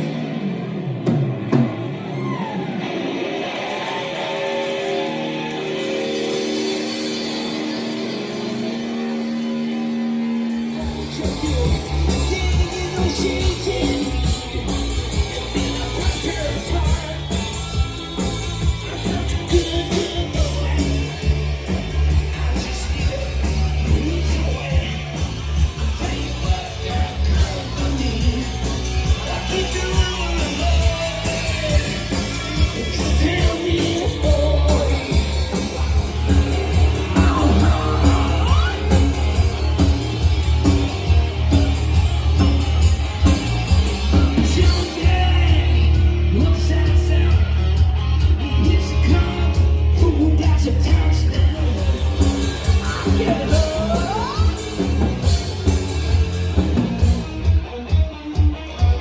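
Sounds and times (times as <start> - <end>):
loud rock band playing: 0.0 - 59.0
person singing: 10.6 - 41.8, 43.2 - 55.6
lead guitar bent notes: 31.3 - 50.1.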